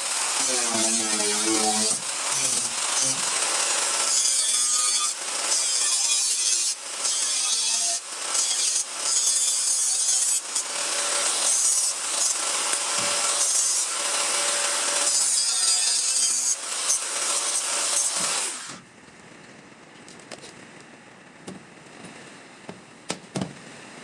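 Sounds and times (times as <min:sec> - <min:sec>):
power tool working steel: 0:00.0 - 0:18.8.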